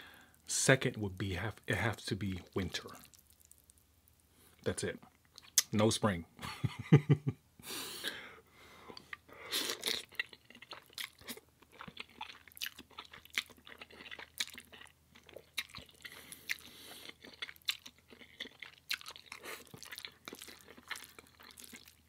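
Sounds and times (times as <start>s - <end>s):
person chewing crunchy food: 2.4s - 3.8s, 8.9s - 22.0s.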